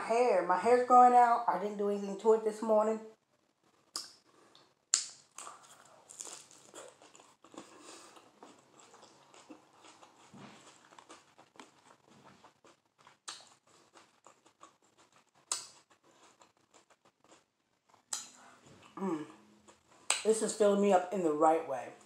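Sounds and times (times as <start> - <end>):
mouth clicks: 3.9 - 5.6, 18.1 - 19.4
wet crunching chewing: 3.9 - 19.0.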